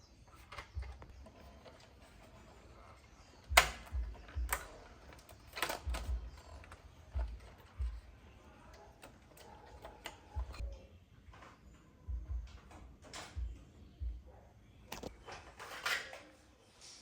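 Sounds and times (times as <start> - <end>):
tool clicks: 3.4 - 10.6
soft low thumps of tools: 12.1 - 14.3.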